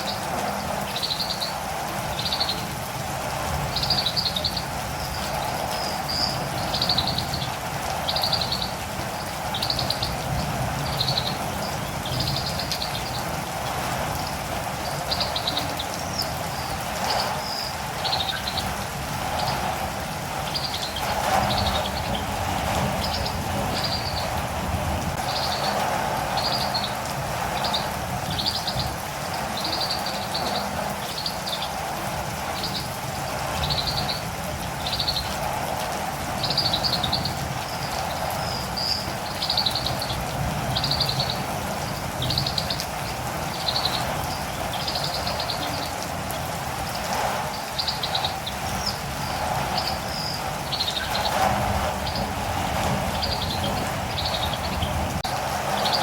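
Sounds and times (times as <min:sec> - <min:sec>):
steady rain: 0:00.0 - 0:56.0
bird chirping: 0:03.7 - 0:13.2, 0:14.8 - 0:19.8, 0:20.4 - 0:24.4, 0:25.2 - 0:31.8, 0:33.6 - 0:35.3, 0:36.4 - 0:46.0, 0:47.5 - 0:55.1.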